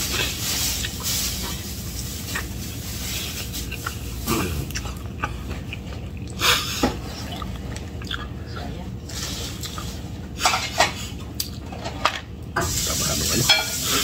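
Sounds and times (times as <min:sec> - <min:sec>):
person chewing food: 0:00.0 - 0:08.7, 0:09.5 - 0:10.1
steady low hum: 0:00.0 - 0:14.0.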